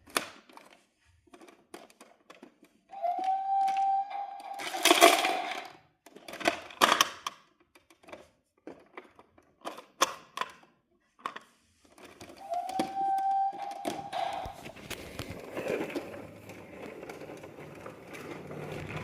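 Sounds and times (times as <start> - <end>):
toy steady high tone: 2.9 - 5.6, 12.4 - 14.8
rattling clatter: 13.8 - 19.0.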